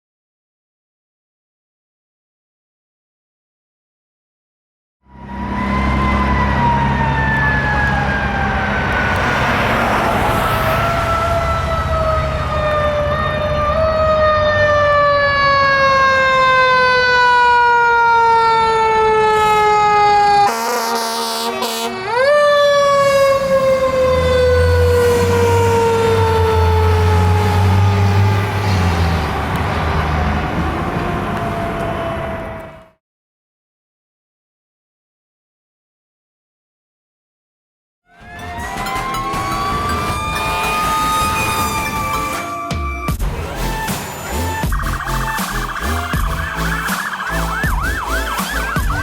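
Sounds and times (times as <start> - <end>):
fire engine siren wailing: 5.0 - 33.0, 38.1 - 49.0
horn blast: 19.2 - 22.2, 38.1 - 49.0.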